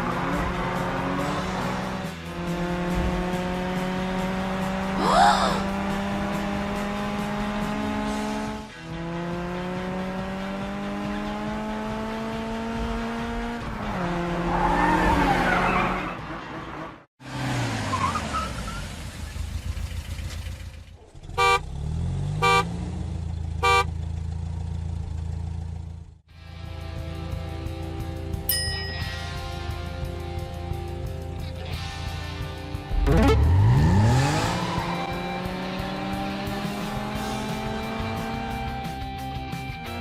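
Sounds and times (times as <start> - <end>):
short horn honks: 21.3 - 21.8, 22.4 - 22.7, 23.6 - 23.9
cartoon engine hum rising in pitch: 32.9 - 36.7.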